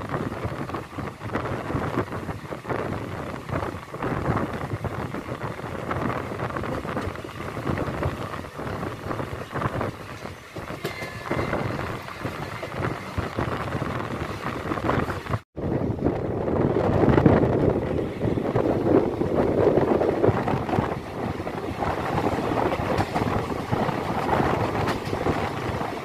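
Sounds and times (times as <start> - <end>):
train wheels clattering on rail: 0.0 - 15.4, 17.0 - 26.0
rushing air: 0.0 - 26.0
train rumble: 0.0 - 26.0.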